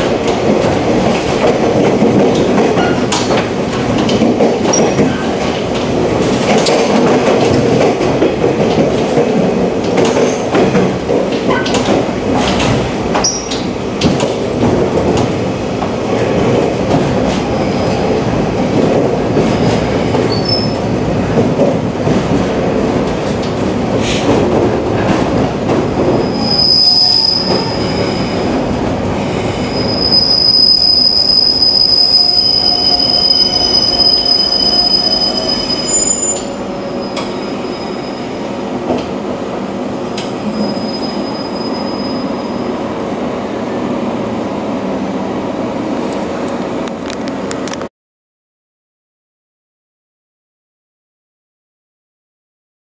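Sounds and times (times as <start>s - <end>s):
train wheels rumbling: 0.0s - 47.9s
high-pitched wheel squeal: 26.2s - 28.4s, 29.7s - 38.4s, 40.4s - 42.6s.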